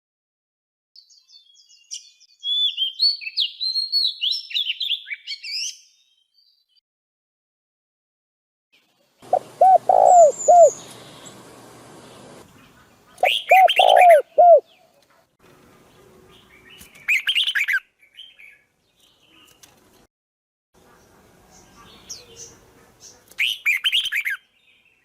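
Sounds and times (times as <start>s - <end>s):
birds calling short arched notes: 9.2s - 14.9s.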